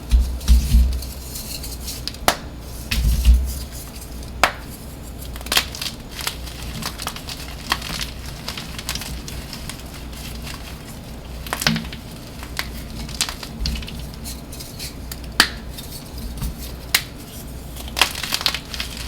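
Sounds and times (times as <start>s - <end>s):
dull thuds of pressing chalk: 0.0s - 1.2s.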